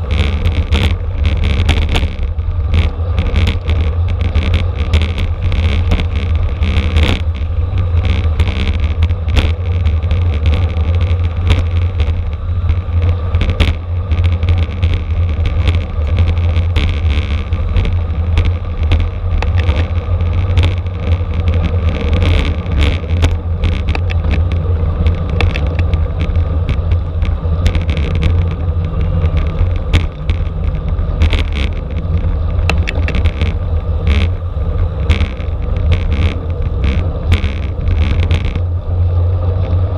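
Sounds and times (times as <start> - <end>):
small rattles and knocks: 0.0 - 38.7
bicycle road noise: 0.0 - 39.9
wind buffeting microphone: 0.0 - 39.9.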